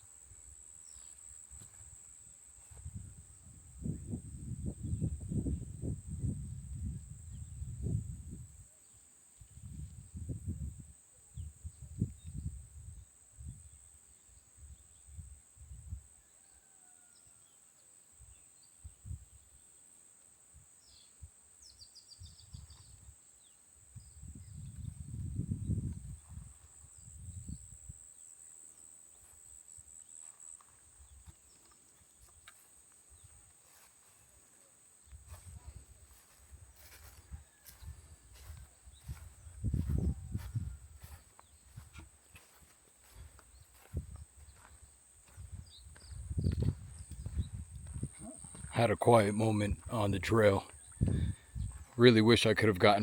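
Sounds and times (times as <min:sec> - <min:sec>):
insects droning: 0:00.0 - 0:53.0
low rumbles on microphone: 0:36.5 - 0:42.0, 0:45.4 - 0:48.7.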